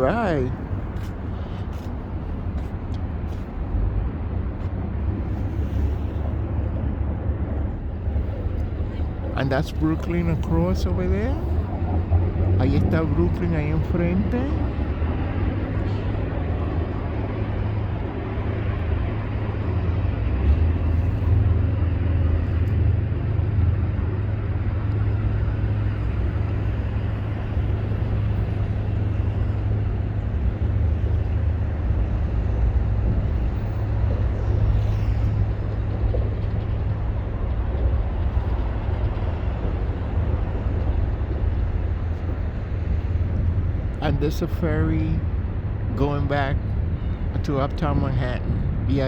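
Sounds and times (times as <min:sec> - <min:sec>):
city background rumble: 0:00.0 - 0:49.0.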